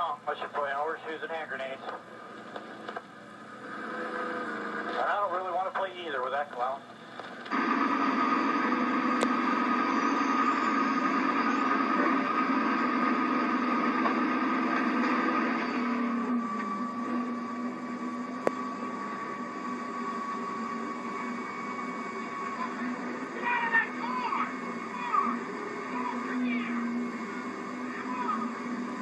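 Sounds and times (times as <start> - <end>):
race car engine running: 1.9 - 5.3, 7.0 - 29.0.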